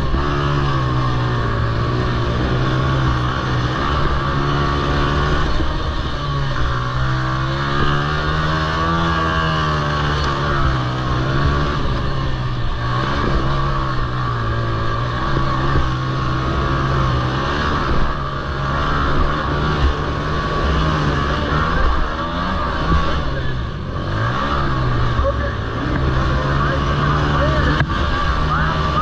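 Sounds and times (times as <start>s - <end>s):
quad engine revving: 0.0s - 29.0s.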